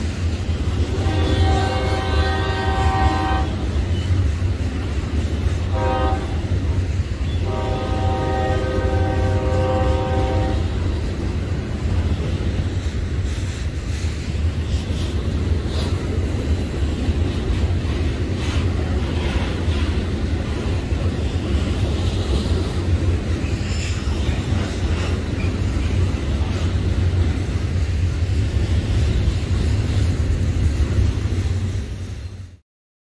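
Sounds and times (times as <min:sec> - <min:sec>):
train wheels rumbling on rails: 0:00.0 - 0:32.6.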